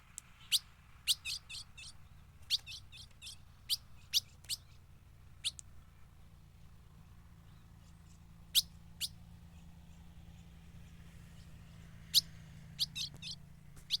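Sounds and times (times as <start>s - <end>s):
bird call notes: 0.4s - 4.8s, 8.5s - 9.2s, 12.0s - 14.0s.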